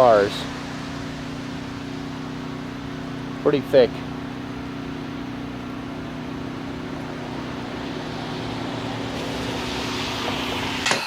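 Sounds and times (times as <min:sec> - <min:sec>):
low mechanical hum: 0:00.0 - 0:11.0
hiss: 0:08.0 - 0:11.0.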